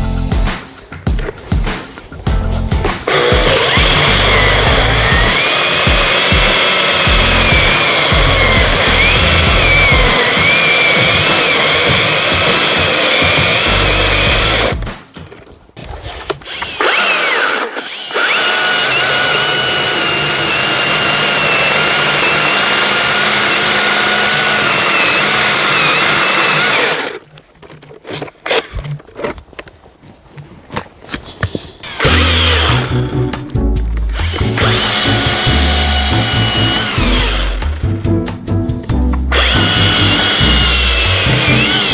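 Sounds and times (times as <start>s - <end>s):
chainsaw motor and chain whine: 3.1s - 14.8s, 16.5s - 27.2s, 31.9s - 33.0s, 34.2s - 37.8s, 39.3s - 41.9s.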